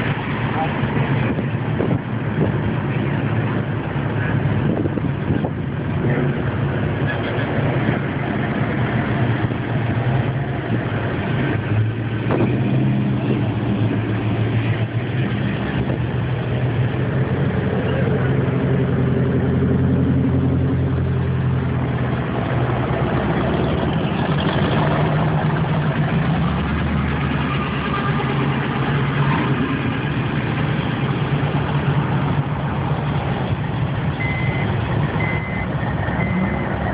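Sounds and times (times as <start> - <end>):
car engines idling: 0.0 - 36.9.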